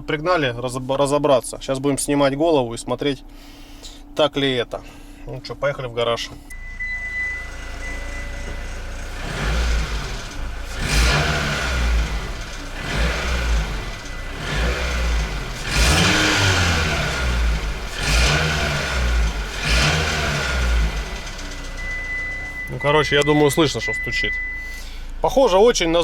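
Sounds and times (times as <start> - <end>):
car engine revving: 6.8 - 24.0.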